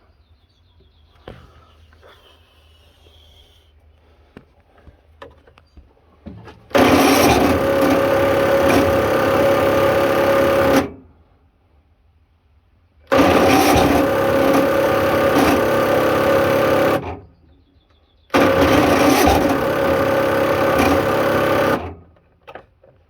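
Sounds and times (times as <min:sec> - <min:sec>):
motor running: 0:06.7 - 0:11.0, 0:13.1 - 0:17.3, 0:18.3 - 0:22.1.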